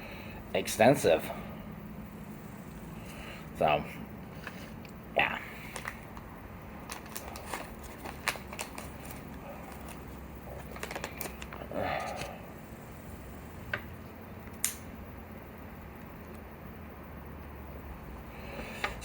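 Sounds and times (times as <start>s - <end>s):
steady low hum: 0.0s - 19.0s
paper-like rustling: 6.9s - 10.0s.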